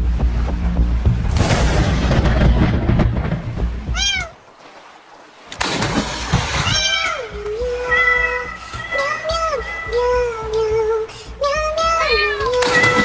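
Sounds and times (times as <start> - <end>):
deep rumbling with hiss: 0.0 - 4.1
cat meowing: 3.9 - 4.4, 6.6 - 8.5.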